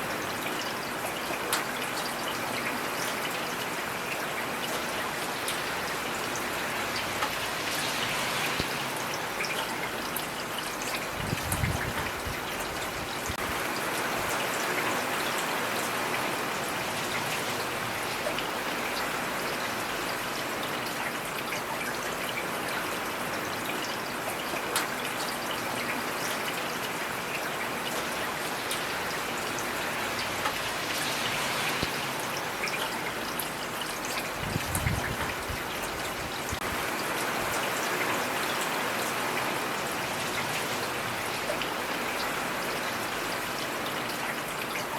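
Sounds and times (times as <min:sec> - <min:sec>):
heavy rain hissing: 0:28.4 - 0:32.7.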